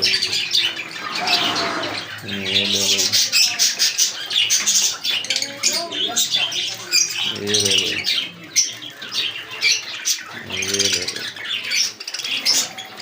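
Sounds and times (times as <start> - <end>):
parrots squawking and screeching: 0.0 - 13.0
low drawn-out bird call: 0.8 - 2.3.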